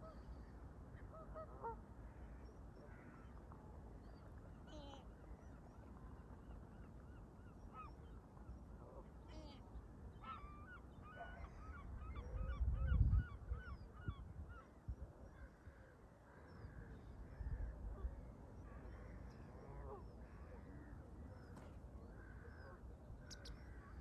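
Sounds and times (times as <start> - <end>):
wind buffeting microphone: 12.3 - 15.1
bird chirps: 23.2 - 23.6.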